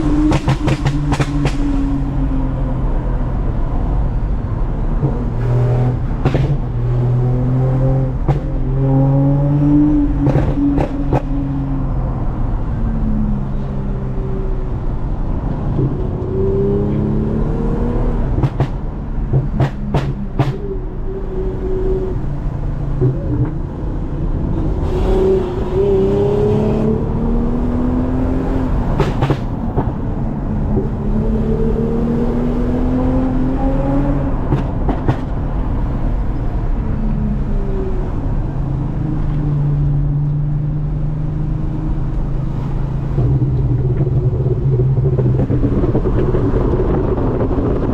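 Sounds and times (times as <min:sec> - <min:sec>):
car engine accelerating: 0:00.0 - 0:47.9
sharp knocks: 0:00.2 - 0:01.7, 0:18.4 - 0:20.6, 0:29.0 - 0:30.0.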